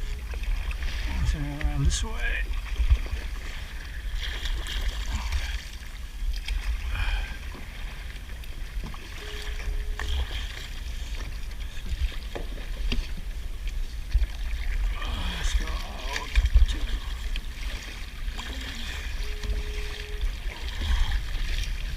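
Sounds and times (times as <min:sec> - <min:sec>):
water around boat: 0:00.0 - 0:21.9
wind rumble on microphone: 0:00.0 - 0:21.9.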